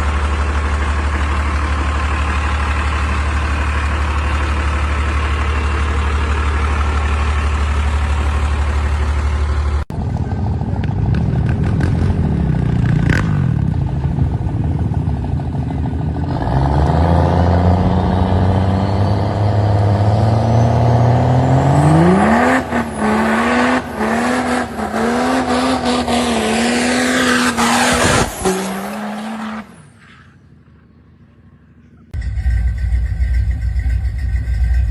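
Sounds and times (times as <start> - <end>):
truck engine idling: 0.0 - 10.8, 30.4 - 34.9
truck engine revving: 15.7 - 29.8.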